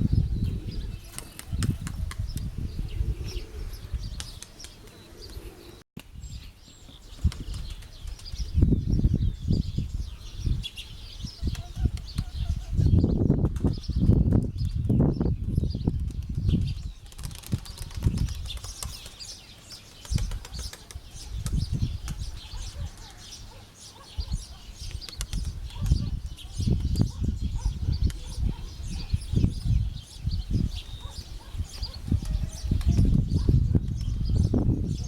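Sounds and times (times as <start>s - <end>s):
wind gusting against microphone: 0.0s - 19.3s, 20.0s - 35.0s
birds chirping: 0.0s - 35.0s.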